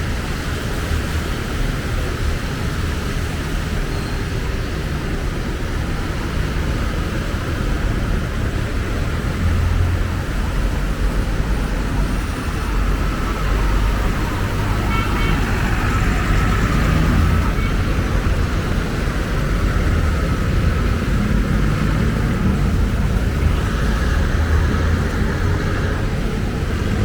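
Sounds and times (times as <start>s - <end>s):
vehicles rumbling past: 0.0s - 27.0s.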